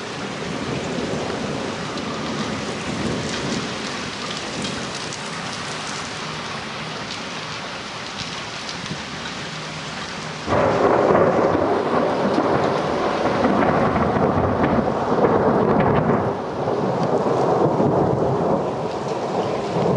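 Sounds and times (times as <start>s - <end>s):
thunder rumbling: 0.0s - 5.6s, 10.4s - 19.9s
rain falling: 0.0s - 19.9s.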